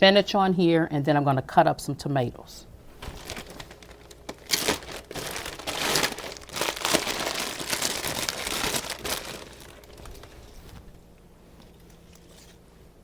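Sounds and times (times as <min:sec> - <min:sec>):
plastic packaging crinkling: 0:03.0 - 0:11.0.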